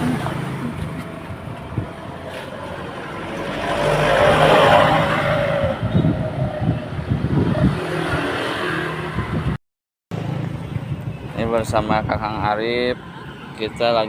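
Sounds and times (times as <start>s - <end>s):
vehicle passing close: 0.0s - 9.6s
road traffic: 0.0s - 14.0s.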